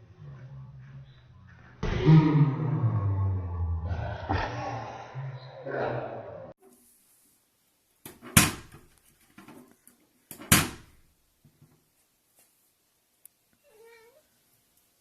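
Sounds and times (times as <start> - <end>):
cat meow: 13.6 - 14.3.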